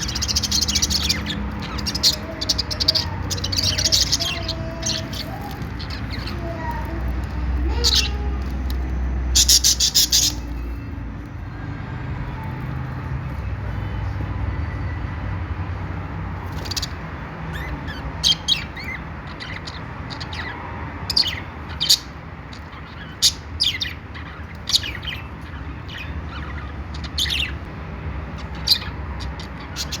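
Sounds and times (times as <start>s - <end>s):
budgerigars chirping: 0.0s - 6.9s, 7.6s - 8.5s, 9.3s - 10.7s, 16.5s - 30.0s.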